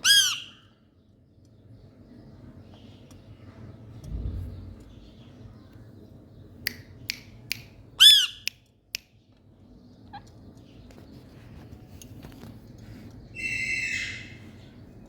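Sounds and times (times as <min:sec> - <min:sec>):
parakeet squawk: 0:00.0 - 0:00.7, 0:08.0 - 0:08.5, 0:13.4 - 0:14.4
low rumble: 0:03.8 - 0:05.7.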